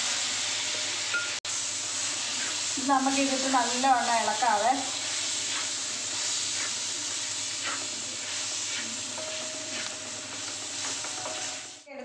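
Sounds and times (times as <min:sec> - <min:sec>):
meat sizzling in a metal pot: 0:00.0 - 0:11.9
stirring scrapes: 0:05.0 - 0:11.8.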